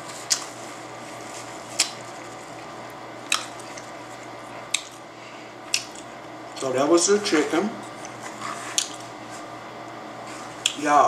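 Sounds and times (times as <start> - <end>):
person chewing: 0.1 - 0.6, 1.2 - 6.2, 7.9 - 9.4
wet mouth smacks: 3.3 - 3.9, 4.7 - 5.0, 5.7 - 6.1, 8.0 - 9.0.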